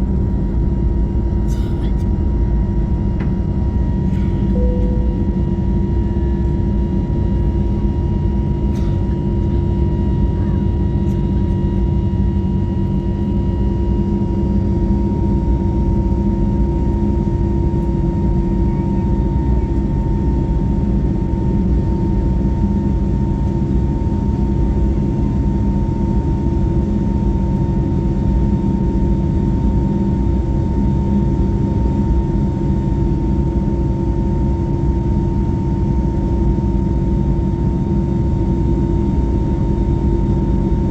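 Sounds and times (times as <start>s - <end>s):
airplane cabin engine drone: 0.0s - 40.9s
faint steady whine: 2.8s - 11.8s.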